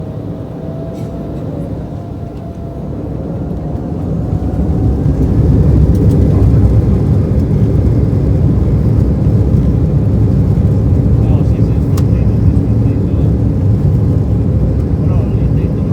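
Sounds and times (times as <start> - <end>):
jet engines spooling up: 0.0 - 9.6.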